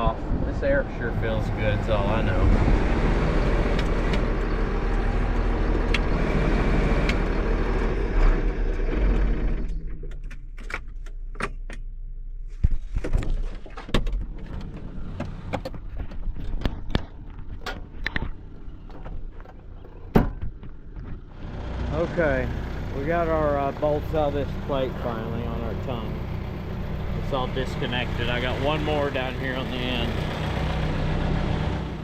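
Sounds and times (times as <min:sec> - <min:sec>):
cab fan blowing: 0:00.0 - 0:09.7, 0:14.3 - 0:32.0
small tractor running: 0:00.0 - 0:10.2, 0:14.4 - 0:32.0.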